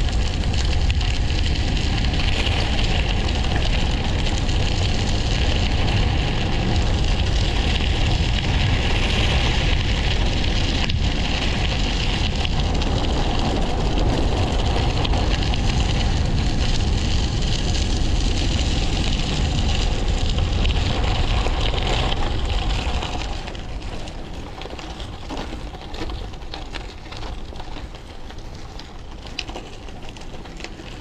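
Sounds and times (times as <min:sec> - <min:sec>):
deep rumble: 0:00.0 - 0:31.0
wind buffeting microphone: 0:00.0 - 0:31.0.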